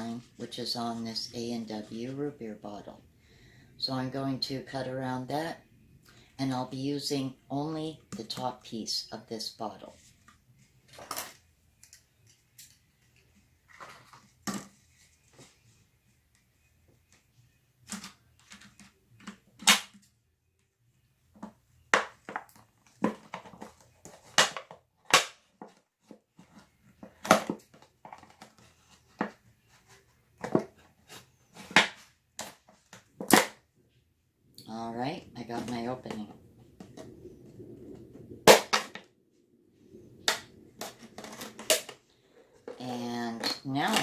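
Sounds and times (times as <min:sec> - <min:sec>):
plastic bottle crackling and crunching: 0:34.6 - 0:39.1, 0:39.8 - 0:43.0.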